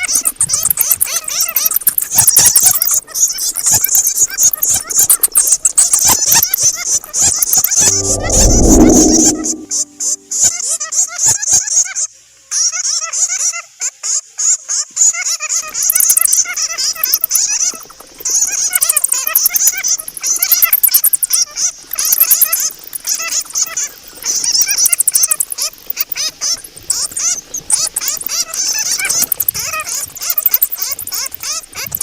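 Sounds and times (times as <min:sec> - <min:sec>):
bats squeaking and chattering: 0:24.3 - 0:32.0.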